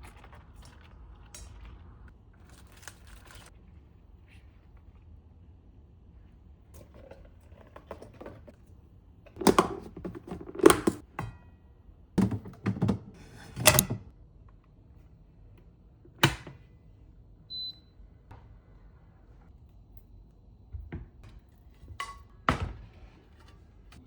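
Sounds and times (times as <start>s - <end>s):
household items knocking and clunking: 9.4s - 11.2s, 12.2s - 14.1s.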